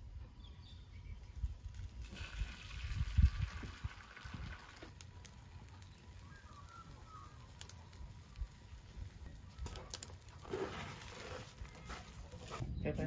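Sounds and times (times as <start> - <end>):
faint bird chirps: 5.8 - 8.0.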